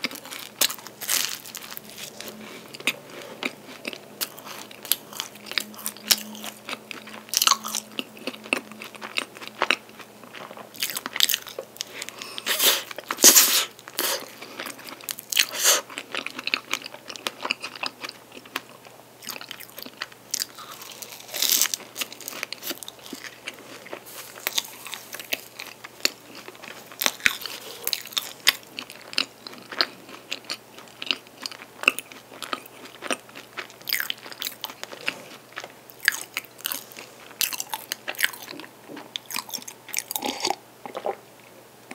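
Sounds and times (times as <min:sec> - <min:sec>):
person chewing crunchy pastry: 0:00.0 - 0:41.2.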